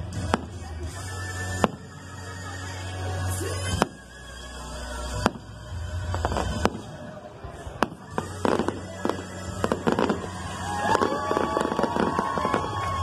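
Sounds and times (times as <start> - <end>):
crackling firework reports: 5.1 - 13.0
firework bangs: 5.2 - 13.0.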